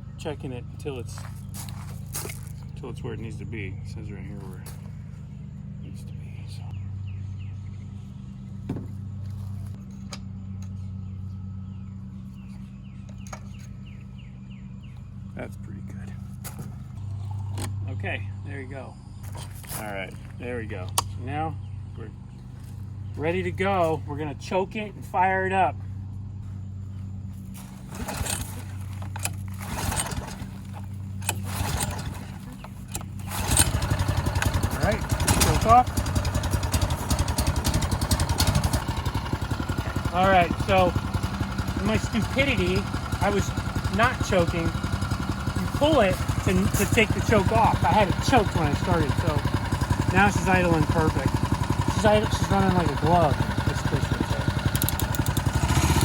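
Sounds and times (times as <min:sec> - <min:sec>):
birds chirping: 0:00.0 - 0:56.0
low mechanical hum: 0:00.0 - 0:56.0
outboard motor running: 0:19.5 - 0:56.0
starter cord pulls: 0:27.6 - 0:56.0
sharp clicks: 0:54.0 - 0:55.8.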